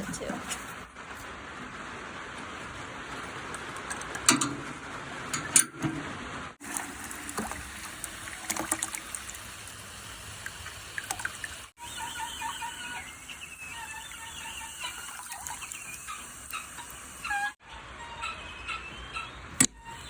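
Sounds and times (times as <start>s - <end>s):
water running into bucket: 6.6s - 11.8s, 12.4s - 17.5s.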